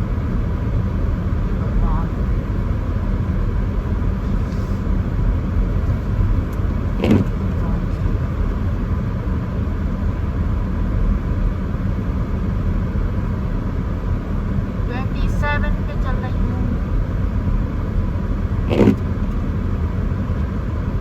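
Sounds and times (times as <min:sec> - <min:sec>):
road and engine noise: 0:00.0 - 0:21.0
short thump: 0:07.0 - 0:07.4, 0:18.7 - 0:19.1.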